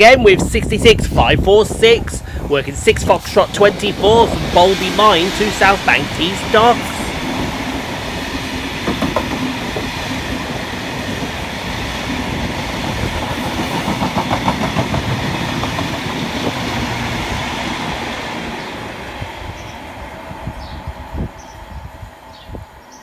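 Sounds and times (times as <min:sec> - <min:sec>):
freight train rumble: 0:00.0 - 0:23.0
steel wheels clattering over rail joints: 0:03.0 - 0:17.2.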